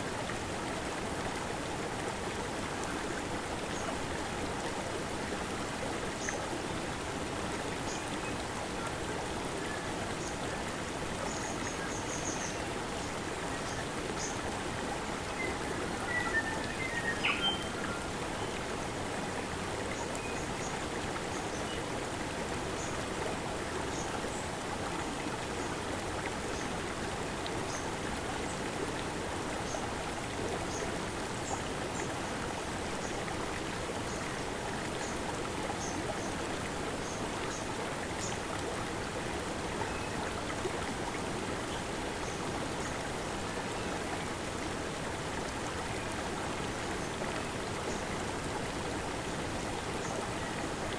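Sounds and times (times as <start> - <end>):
stream burbling over rocks: 0.0 - 50.9.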